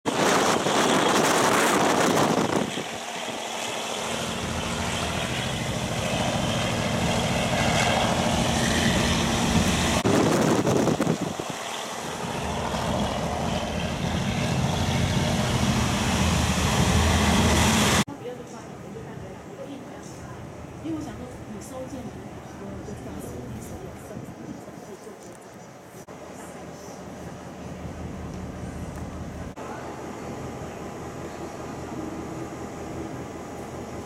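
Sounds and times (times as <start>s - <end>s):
rushing air: 0.1s - 18.1s.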